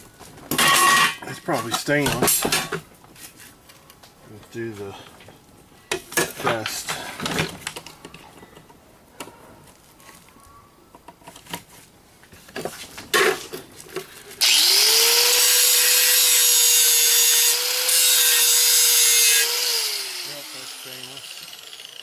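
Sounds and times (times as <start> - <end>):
electric grinder on metal: 14.4 - 22.0.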